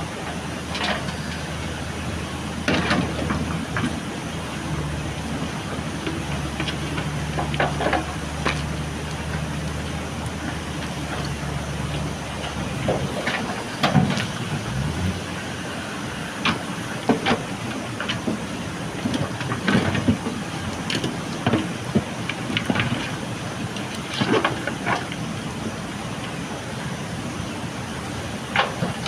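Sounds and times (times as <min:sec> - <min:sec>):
diesel engine running: 0:00.0 - 0:29.0
gravel and steel clanking: 0:00.1 - 0:29.0.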